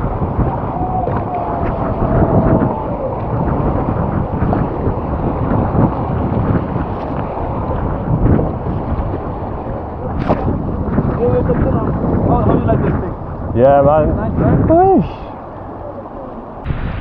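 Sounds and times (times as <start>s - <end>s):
whitewater rushing: 0.0s - 13.3s
water splashes: 0.0s - 17.0s
wind buffeting microphone: 0.0s - 17.0s.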